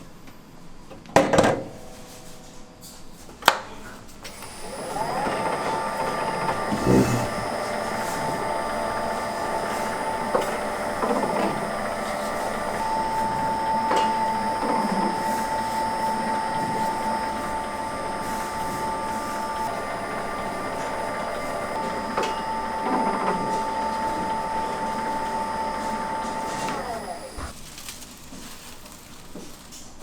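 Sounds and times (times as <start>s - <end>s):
noodle machine motor whine: 4.3s - 27.5s.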